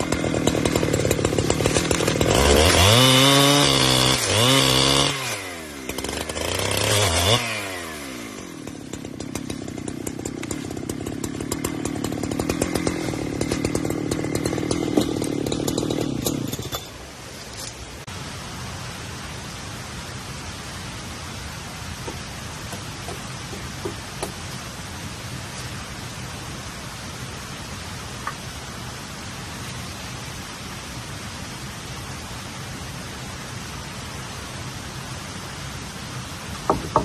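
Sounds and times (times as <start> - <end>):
two-stroke chainsaw revving and idling: 0.0 - 16.9, 22.1 - 24.5.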